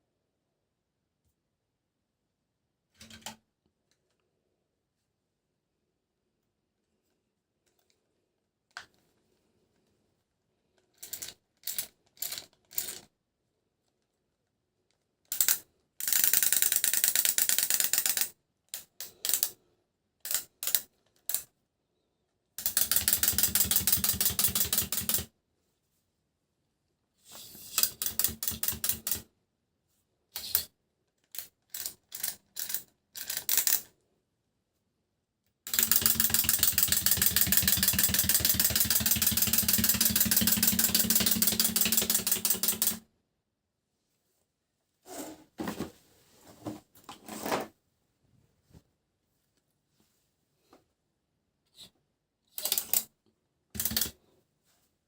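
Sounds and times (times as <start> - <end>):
toy train gears clicking and whirring: 11.0 - 13.0, 15.3 - 19.6, 22.6 - 25.3, 27.3 - 29.2, 30.4 - 30.7, 31.3 - 33.9, 35.7 - 43.0, 52.6 - 53.1, 53.8 - 54.1.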